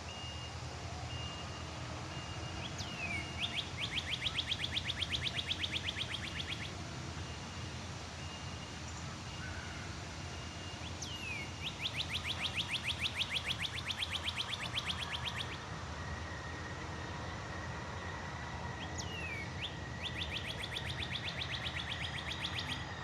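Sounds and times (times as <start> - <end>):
faint bird whistles: 0.1 - 6.7, 8.2 - 15.6, 18.8 - 23.0
bird trilling: 2.7 - 6.7, 11.0 - 15.6, 19.0 - 23.0.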